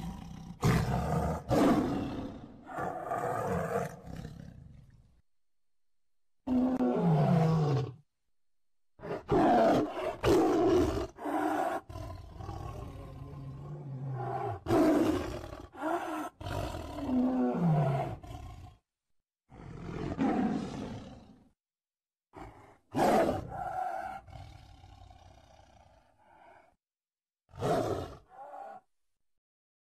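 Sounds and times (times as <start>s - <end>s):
tiger roaring: 0.0s - 4.6s, 6.5s - 8.0s, 9.0s - 18.8s, 19.5s - 21.4s, 22.4s - 26.7s, 27.5s - 28.9s.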